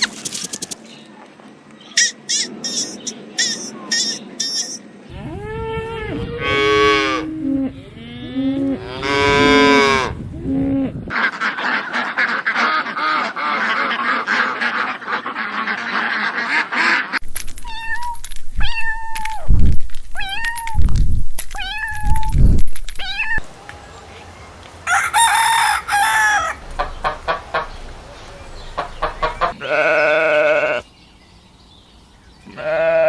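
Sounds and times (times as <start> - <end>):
chorus of farm animals: 0.0 - 17.2, 23.0 - 33.0
long low animal calls: 5.1 - 11.1.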